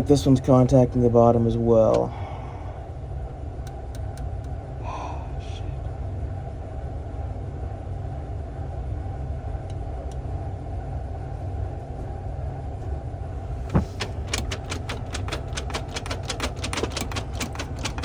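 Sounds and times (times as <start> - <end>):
pinsetter machinery drone: 9.0 - 18.0
rapid metal clicks: 13.7 - 18.0.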